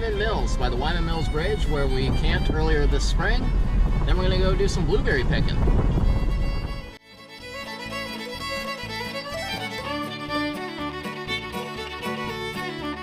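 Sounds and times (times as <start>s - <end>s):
fiddle: 0.0s - 13.0s
guitar: 0.0s - 13.0s.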